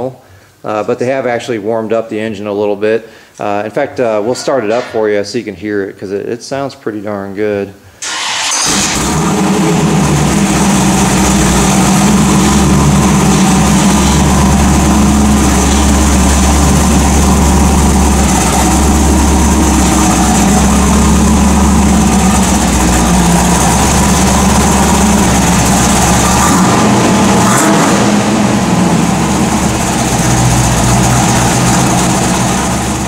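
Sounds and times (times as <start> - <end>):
vee eight engine idling: 8.1 - 33.0.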